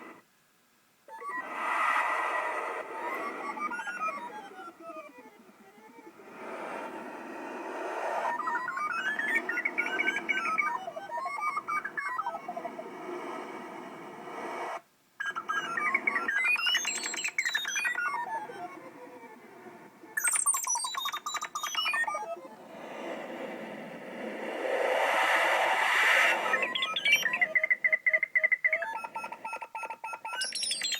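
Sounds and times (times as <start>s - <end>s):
synthesized wind hiss: 0.0s - 16.8s, 22.4s - 27.7s
synthesized bird chirps: 1.1s - 12.8s, 14.7s - 19.4s, 20.1s - 23.2s, 24.4s - 30.9s.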